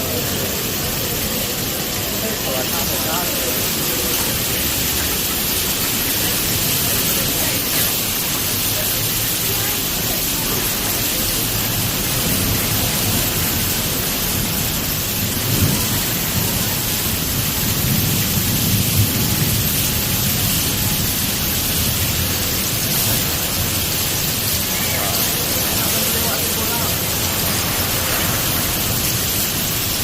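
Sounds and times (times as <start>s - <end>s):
heavy rain pouring: 0.0s - 30.0s
low rumbles: 11.4s - 30.0s.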